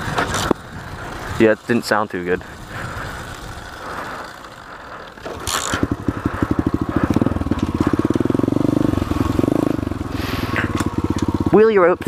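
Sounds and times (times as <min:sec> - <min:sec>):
rolling and wind noise: 0:00.0 - 0:12.0
motorbike engine firing: 0:05.2 - 0:11.6.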